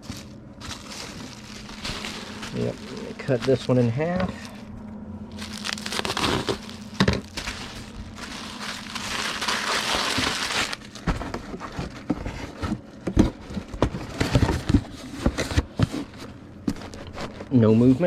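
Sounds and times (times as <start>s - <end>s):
bubble wrap crinkling: 0.0s - 4.7s, 5.3s - 12.2s.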